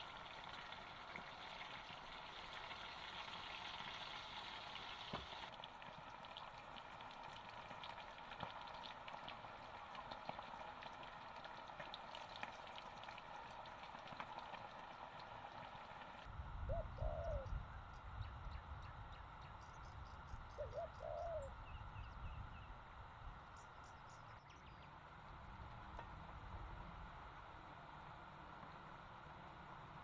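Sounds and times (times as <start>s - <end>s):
bird hooting call: 16.6s - 19.8s, 20.5s - 22.7s.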